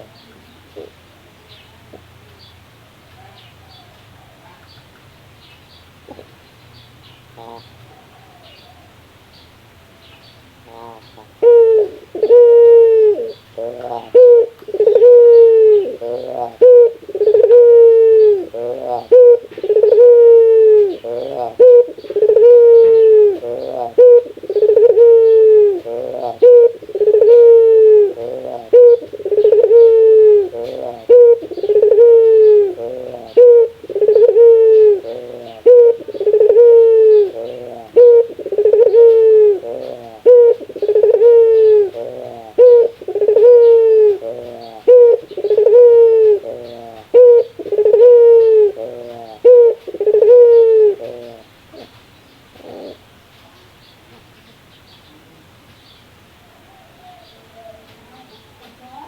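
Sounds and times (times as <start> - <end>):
dove laughing call: 10.6 - 52.0, 52.6 - 53.1.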